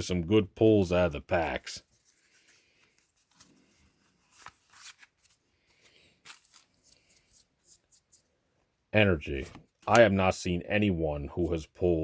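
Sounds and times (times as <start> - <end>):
trading cards rustling: 1.3 - 8.3.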